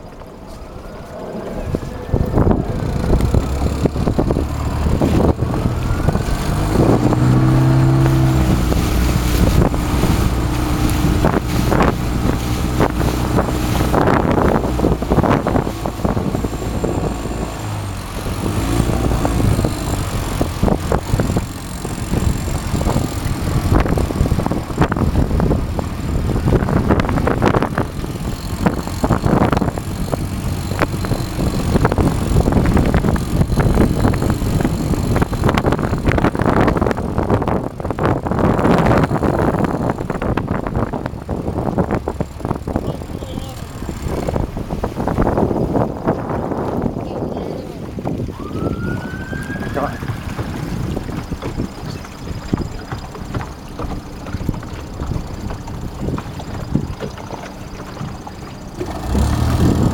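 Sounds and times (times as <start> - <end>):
wind buffeting microphone: 0.0 - 59.9
flaps and knocks: 50.0 - 58.9.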